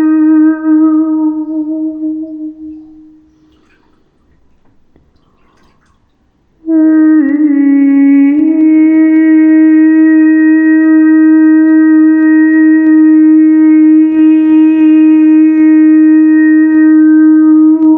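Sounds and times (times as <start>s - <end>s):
long held musical note: 0.0s - 4.1s.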